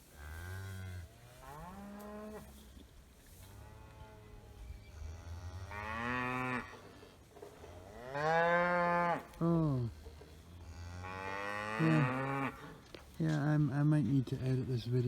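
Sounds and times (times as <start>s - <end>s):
cow mooing: 3.6s - 6.9s, 7.8s - 12.8s.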